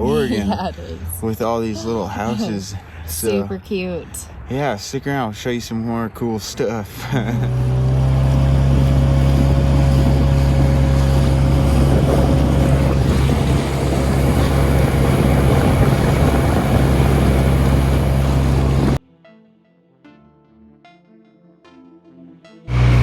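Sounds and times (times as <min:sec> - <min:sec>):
wind: 0:00.0 - 0:19.0
outboard motor running: 0:07.0 - 0:19.0, 0:22.7 - 0:23.0
water rushing: 0:07.7 - 0:19.0.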